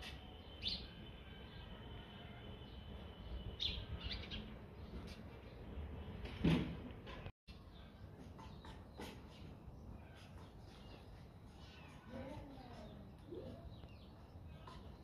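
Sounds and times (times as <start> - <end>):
thump: 6.3 - 6.9
birds chirping: 7.5 - 15.0.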